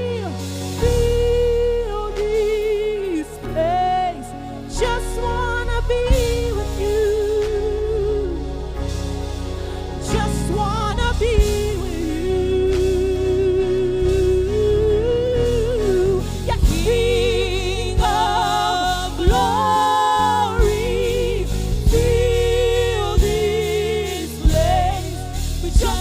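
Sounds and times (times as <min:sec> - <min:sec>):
keyboard and bass backing: 0:00.0 - 0:26.0
person singing with vibrato: 0:09.9 - 0:26.0.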